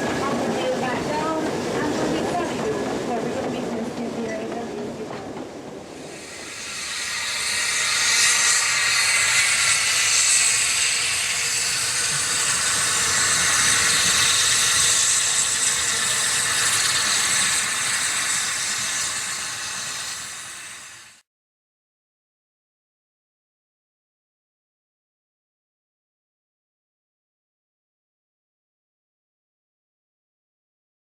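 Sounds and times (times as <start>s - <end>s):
steam locomotive hissing: 5.8s - 21.2s.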